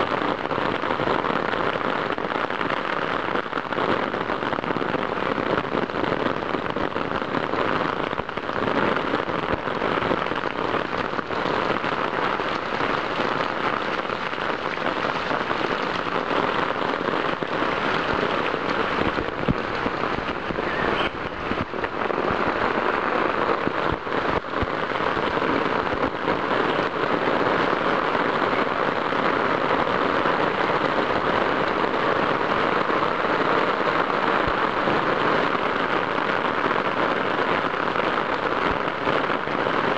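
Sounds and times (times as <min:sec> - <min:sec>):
heavy rain hissing: 0:00.0 - 0:39.9
close taps of raindrops: 0:10.3 - 0:22.6.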